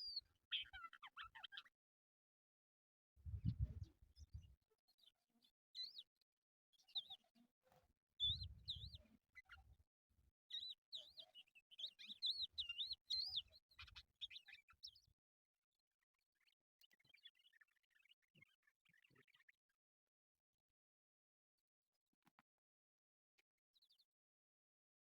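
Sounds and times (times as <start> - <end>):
lark singing whistled notes: 8.2 - 9.6, 10.5 - 15.0.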